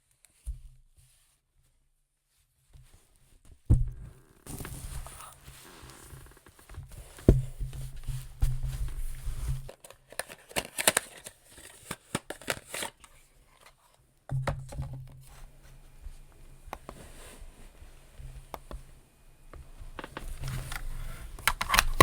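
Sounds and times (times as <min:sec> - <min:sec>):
paper crinkling: 0:09.0 - 0:14.0, 0:20.0 - 0:22.0.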